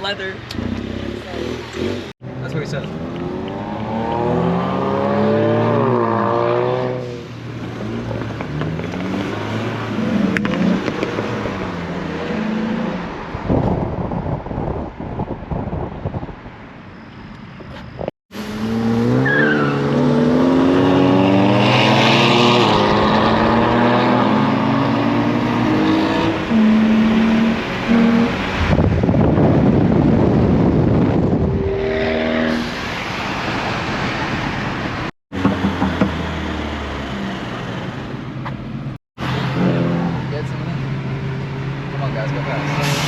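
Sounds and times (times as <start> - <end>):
rushing noise: 27.5 - 35.1.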